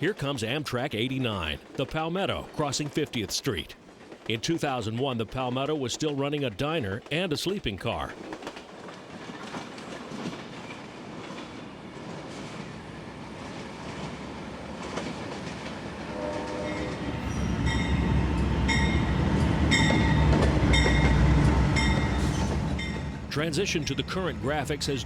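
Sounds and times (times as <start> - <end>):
rail noise: 0.0 - 25.0
diesel locomotive rumble: 12.9 - 25.0
train bell ringing: 16.5 - 24.8.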